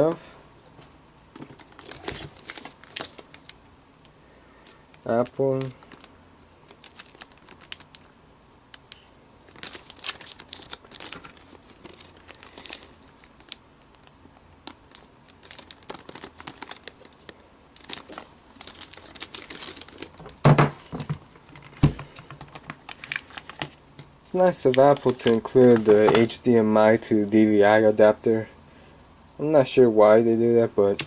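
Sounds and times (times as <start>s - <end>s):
packaging crinkling: 1.4s - 3.7s, 4.6s - 8.1s, 8.8s - 23.8s, 24.4s - 26.6s.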